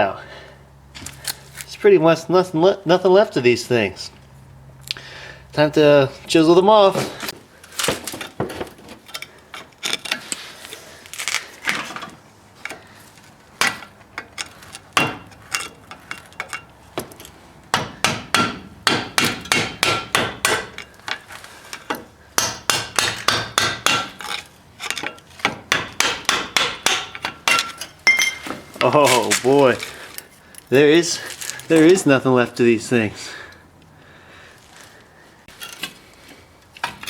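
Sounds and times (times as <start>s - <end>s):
hammer striking chisel: 15.0s - 16.6s, 17.7s - 21.2s, 21.8s - 28.9s.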